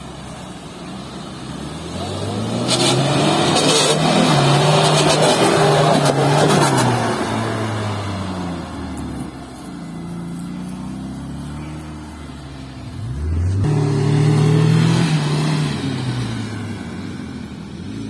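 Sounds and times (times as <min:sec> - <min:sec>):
vehicle engine revving: 0:01.3 - 0:18.0.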